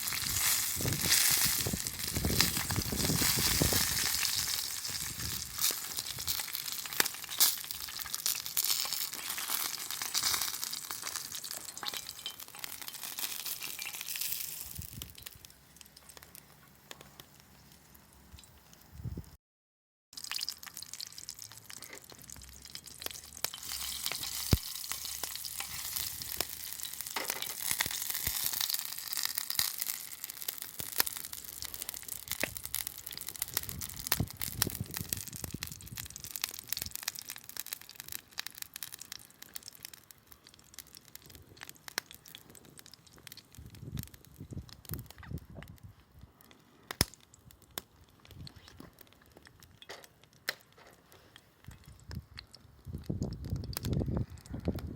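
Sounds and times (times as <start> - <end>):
food sizzling in a pan: 0.0 - 15.1, 20.2 - 39.2.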